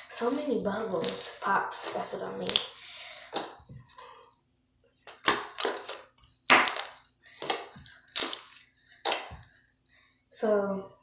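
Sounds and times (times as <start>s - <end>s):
slime bubbles popping and crackling: 0.1s - 4.0s, 5.2s - 9.6s.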